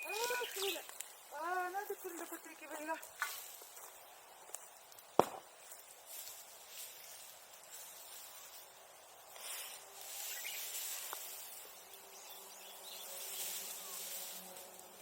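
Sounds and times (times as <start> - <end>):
bonfire flames hissing: 0.0 - 15.0
fire crackle: 0.0 - 15.0.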